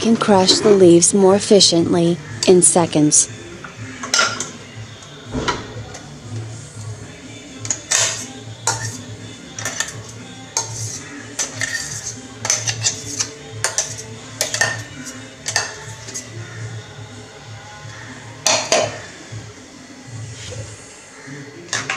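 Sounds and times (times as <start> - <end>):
jars and lids clinking: 7.6 - 16.2.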